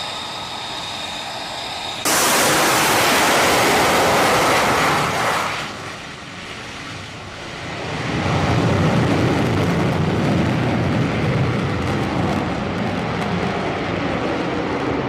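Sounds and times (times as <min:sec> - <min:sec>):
jet engine rushing hiss: 0:00.0 - 0:08.3
low jet rumble: 0:00.0 - 0:15.0.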